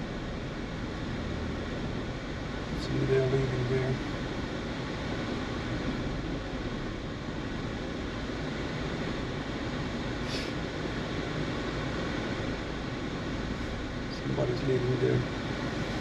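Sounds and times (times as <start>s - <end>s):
car idling: 0.0s - 16.0s
ventilation fan running: 0.0s - 16.0s.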